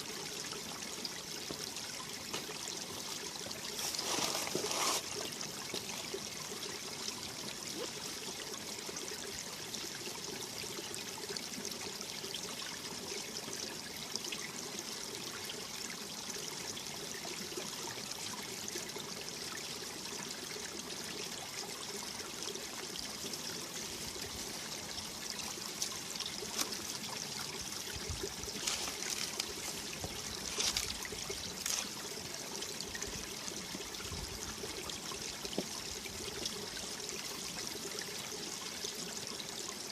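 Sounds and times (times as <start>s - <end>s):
stream flowing over rocks: 0.0s - 39.9s
water splashes: 23.8s - 36.8s.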